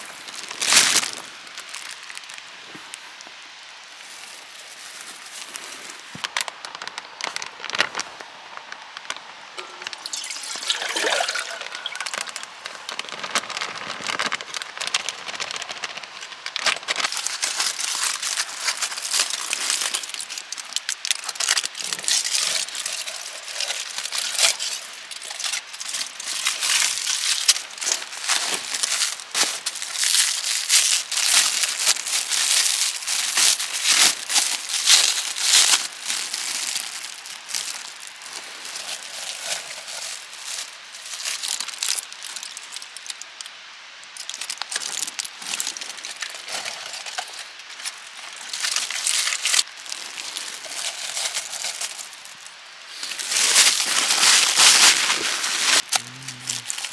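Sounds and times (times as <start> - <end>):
wood fire crackling: 0.0 - 56.9.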